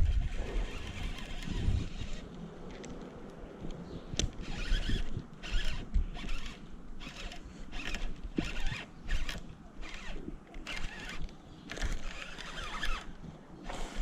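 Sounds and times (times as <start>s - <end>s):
fishing reel buzzing: 0.0s - 2.2s, 4.4s - 13.1s.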